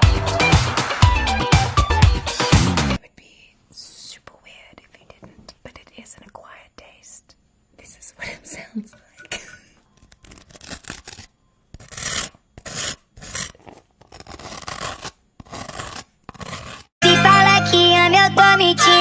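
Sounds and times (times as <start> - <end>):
scratchy rubbing strokes: 9.9 - 16.9.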